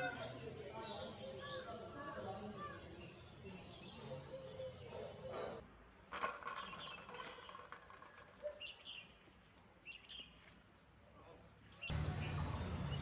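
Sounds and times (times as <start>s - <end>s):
small birds chirping: 11.8s - 13.0s.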